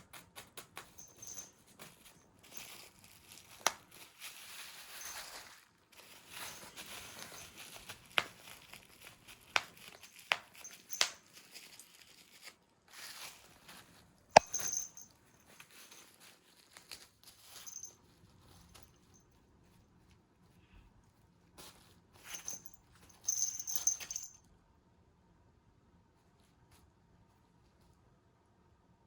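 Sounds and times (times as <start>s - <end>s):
rustling and crinkling: 0.1s - 24.5s.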